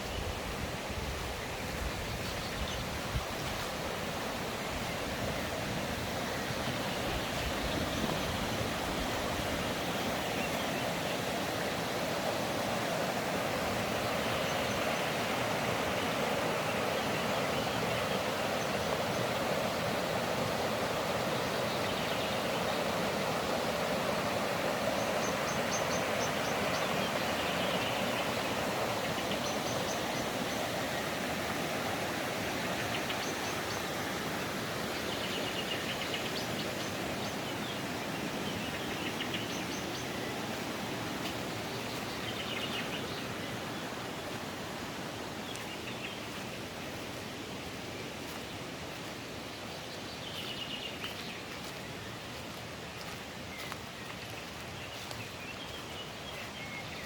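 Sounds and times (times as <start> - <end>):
mountain stream rushing: 0.0 - 57.0
birds chirping: 13.8 - 31.2, 32.4 - 57.0.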